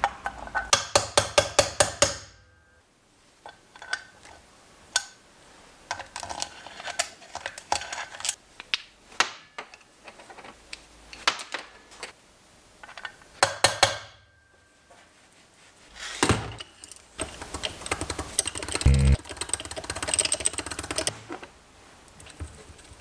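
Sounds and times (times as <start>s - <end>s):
rapid mechanical clicking and rattling: 17.2s - 21.2s.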